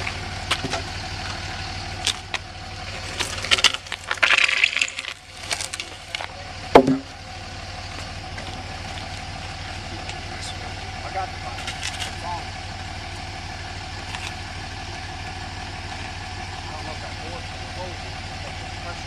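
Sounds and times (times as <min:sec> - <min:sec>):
engine idling: 0:00.0 - 0:19.0
knocks scrapes and clatter: 0:02.9 - 0:07.1
sharp loud knock: 0:06.8 - 0:07.1.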